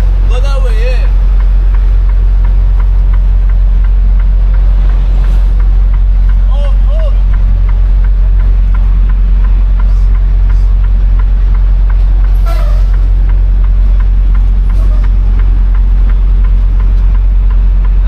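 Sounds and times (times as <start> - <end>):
diesel engine rumbling: 0.0 - 18.0
faint light ticks: 7.3 - 18.0.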